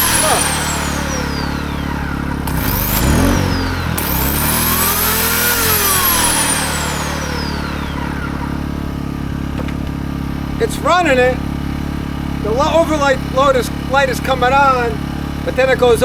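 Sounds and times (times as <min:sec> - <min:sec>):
electric chainsaw motor whining: 0:00.0 - 0:12.6
generator engine drone: 0:00.0 - 0:16.0.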